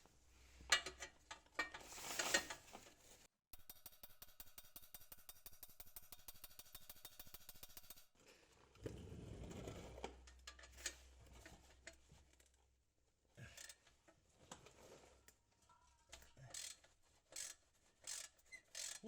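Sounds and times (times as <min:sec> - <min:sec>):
socket wrench clicks and scrapes: 0:03.6 - 0:08.1, 0:16.2 - 0:19.0.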